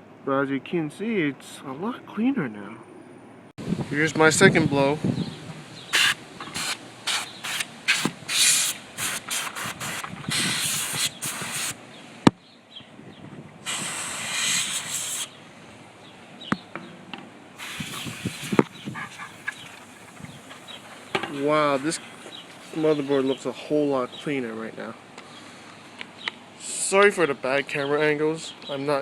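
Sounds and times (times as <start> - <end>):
compressed air hissing in bursts: 5.9 - 11.8, 13.6 - 15.4, 17.6 - 23.5.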